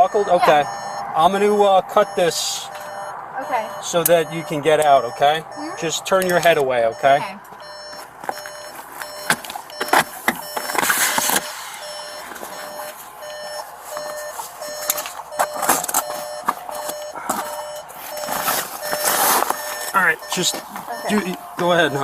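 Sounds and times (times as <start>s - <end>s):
car warning chime beeping: 0.0s - 22.0s
airbag rustling and scraping: 13.8s - 20.0s.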